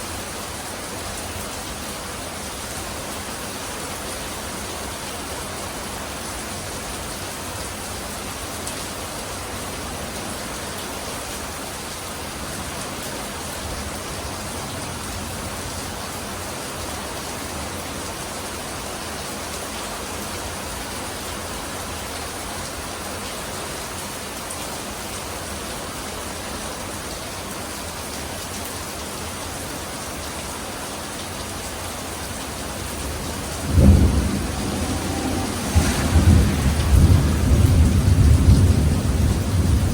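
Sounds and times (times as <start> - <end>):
steady rain: 0.0 - 39.9
thunder clap with low rumble: 32.8 - 39.9.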